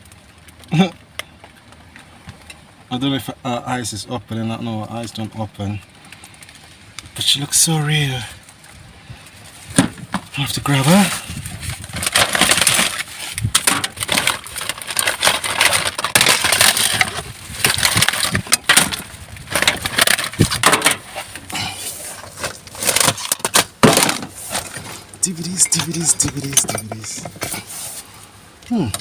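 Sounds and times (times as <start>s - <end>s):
rubbish bags rustling and crunching: 5.9s - 29.0s
knocks and clatters: 11.9s - 21.2s.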